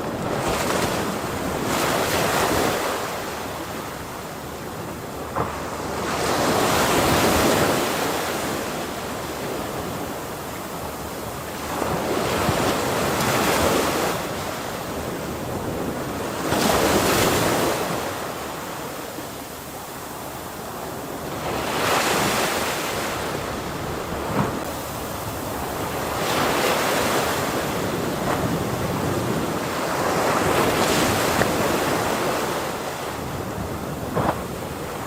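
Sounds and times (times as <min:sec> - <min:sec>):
ocean waves breaking on shore: 0:00.0 - 0:35.0
wind on microphone: 0:20.8 - 0:35.0.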